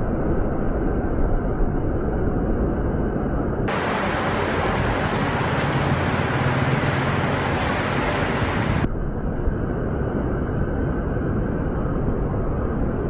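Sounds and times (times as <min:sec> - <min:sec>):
river rapids roaring: 0:03.7 - 0:08.9.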